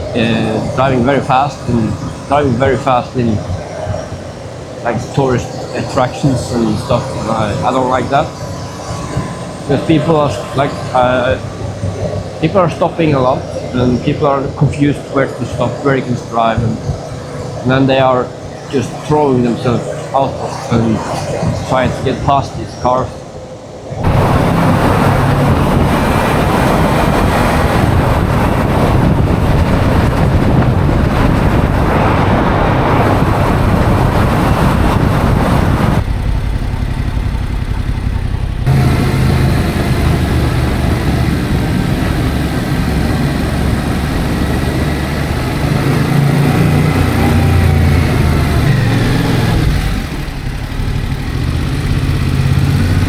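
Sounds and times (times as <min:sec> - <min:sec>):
loud wind rush: 0:00.0 - 0:36.1, 0:38.6 - 0:53.0
motorcycle engine running: 0:24.0 - 0:53.0.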